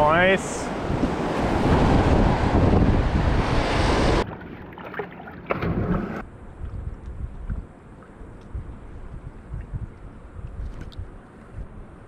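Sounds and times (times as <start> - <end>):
wind buffeting microphone: 0.0 - 4.4, 5.6 - 12.0
whitewater rushing and splashing: 0.0 - 6.2.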